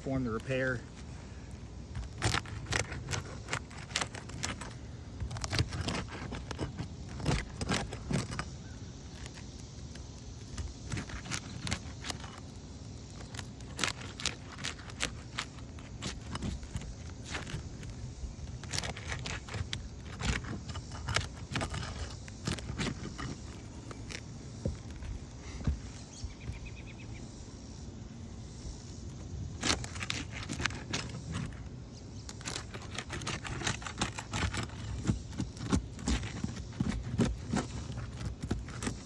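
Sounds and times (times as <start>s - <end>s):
roofing tool scraping and clicking: 0.0s - 26.6s, 27.7s - 39.0s
roof shingles crackling: 0.0s - 39.0s.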